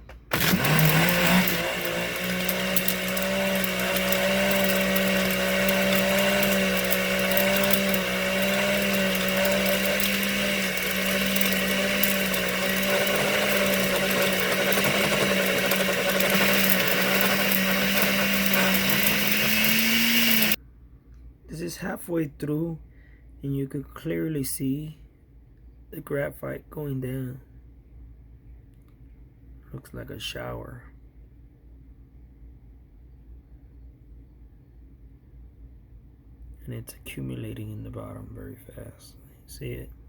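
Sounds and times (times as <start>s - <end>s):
blender motor whirring: 0.3s - 20.6s.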